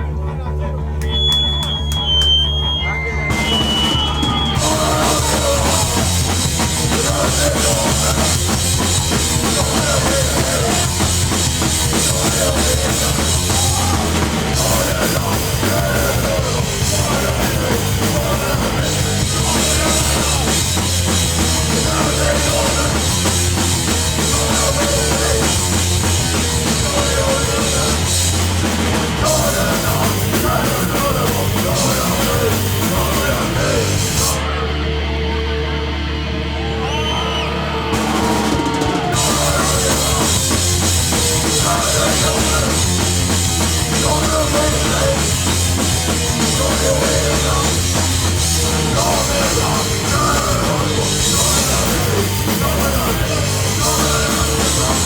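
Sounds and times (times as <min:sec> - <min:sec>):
hardcore punk band playing live: 0:00.8 - 0:55.0
high whistling feedback tone: 0:01.0 - 0:05.2.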